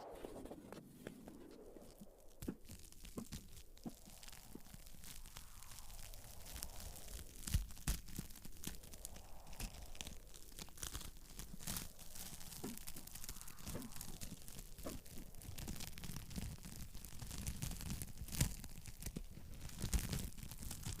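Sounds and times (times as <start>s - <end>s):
sharp pops: 0.0s - 8.9s, 9.5s - 19.3s
faint hiss: 0.0s - 21.0s
soft whistling from burning wood: 0.0s - 21.0s
wood fire crackling: 0.0s - 21.0s.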